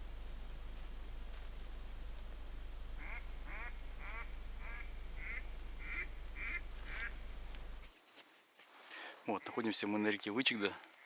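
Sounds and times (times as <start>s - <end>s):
duck call quacks: 3.0s - 7.1s.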